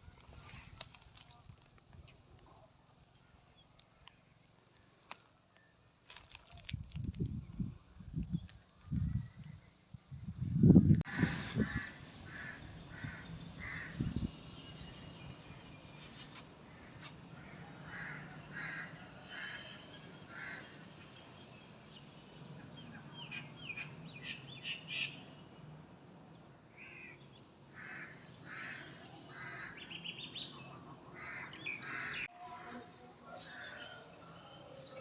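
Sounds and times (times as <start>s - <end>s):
birds calling: 26.8s - 32.3s.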